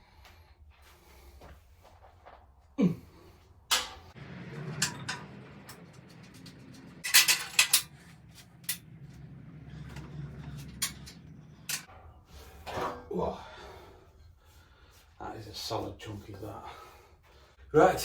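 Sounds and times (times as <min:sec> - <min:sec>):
metal tools clanking: 0:03.7 - 0:13.1
low steady hum: 0:03.8 - 0:14.6.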